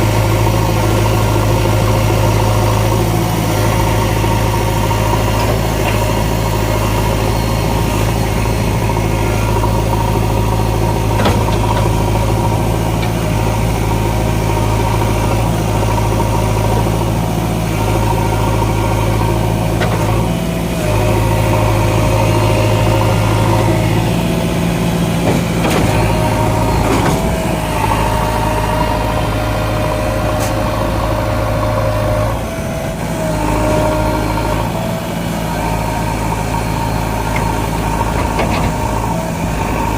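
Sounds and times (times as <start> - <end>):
diesel engine running: 0.0 - 39.9
hydraulic whine: 0.0 - 39.9.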